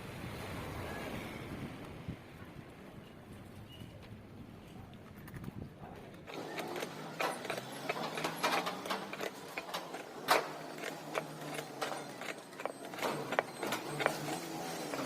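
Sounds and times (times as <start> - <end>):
mechanical clicking and knocking: 6.3 - 15.0.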